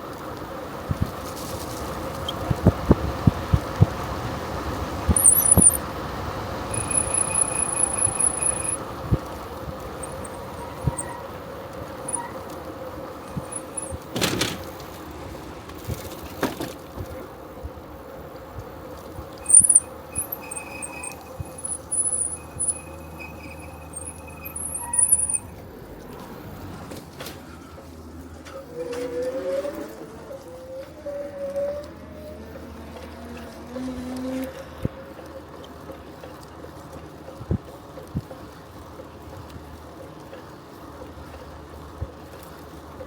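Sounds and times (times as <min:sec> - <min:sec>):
bicycle tyres rolling: 0:00.0 - 0:43.0
thin high-pitched squeaks: 0:05.1 - 0:05.8, 0:06.7 - 0:08.8, 0:10.0 - 0:11.4, 0:12.0 - 0:12.5, 0:13.3 - 0:14.0, 0:19.4 - 0:25.6.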